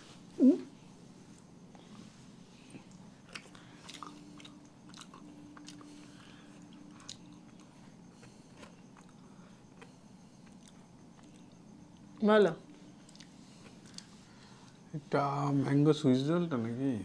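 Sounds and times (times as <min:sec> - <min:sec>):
person chewing: 0:02.6 - 0:12.1, 0:13.0 - 0:14.1.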